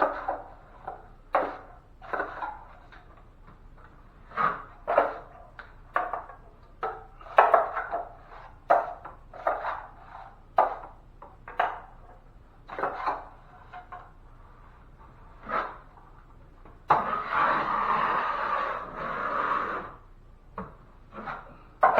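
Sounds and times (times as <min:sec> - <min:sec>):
drywall knife scraping mud pan: 0:00.0 - 0:03.3, 0:04.1 - 0:11.0, 0:12.6 - 0:14.0, 0:15.0 - 0:16.2, 0:16.9 - 0:20.0, 0:21.1 - 0:21.9.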